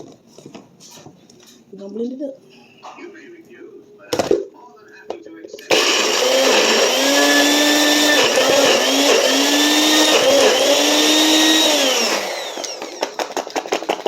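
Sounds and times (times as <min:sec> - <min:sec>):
blender motor running: 0:05.7 - 0:13.5.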